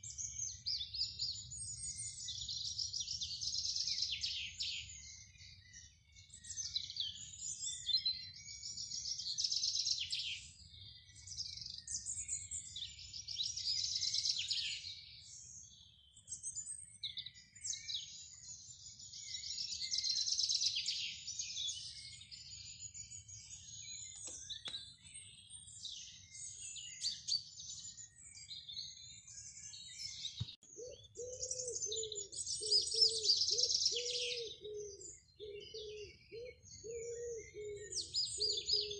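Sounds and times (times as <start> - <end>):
songbirds trilling: 0.0 - 38.9
pigeon cooing: 30.8 - 38.9.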